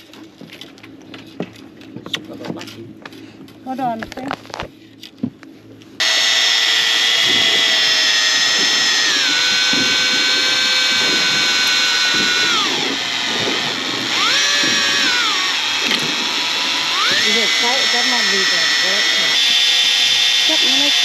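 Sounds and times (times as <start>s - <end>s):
fishing reel motor whining: 6.0s - 21.0s.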